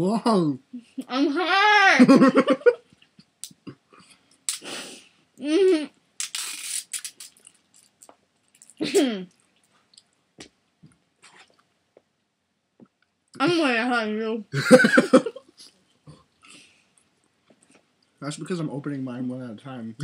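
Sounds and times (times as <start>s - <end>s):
wet mouth clicks: 4.4s - 4.8s, 6.2s - 10.2s.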